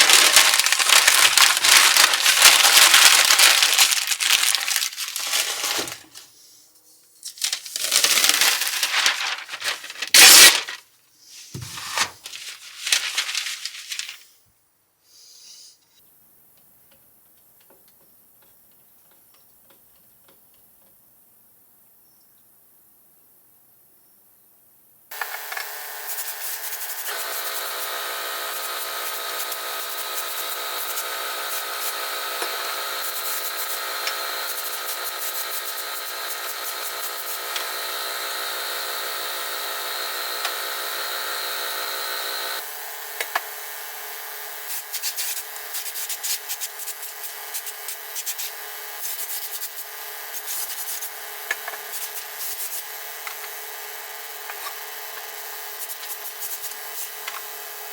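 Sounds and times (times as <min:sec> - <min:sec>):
electric power tool sanding: 0:00.0 - 0:06.0, 0:25.1 - 0:57.9.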